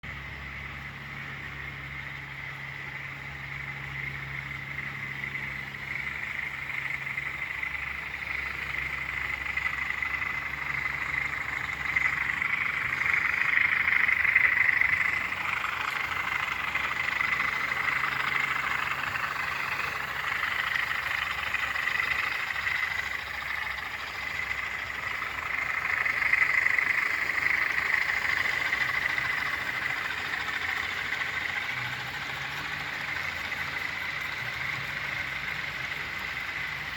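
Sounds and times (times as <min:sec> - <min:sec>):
low engine hum: 0:00.0 - 0:36.9.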